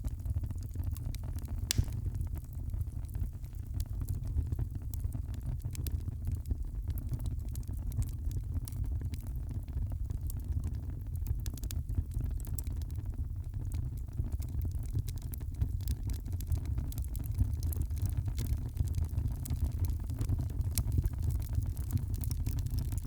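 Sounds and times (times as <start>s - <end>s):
fireplace fire crackling: 1.7s - 2.2s.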